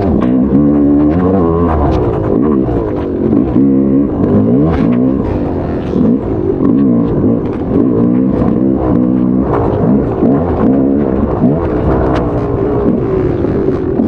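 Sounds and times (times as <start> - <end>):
motocross bike engine revving: 0.0 - 14.0.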